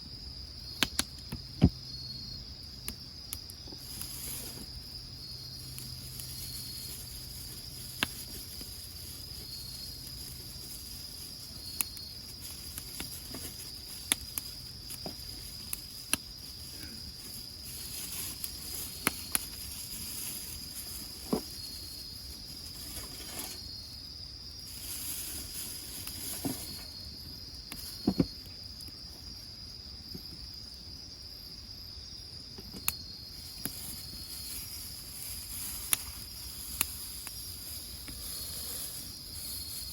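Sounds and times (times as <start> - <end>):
night insects chirring: 0.0 - 39.9
firewood popping and crackling: 2.7 - 23.7.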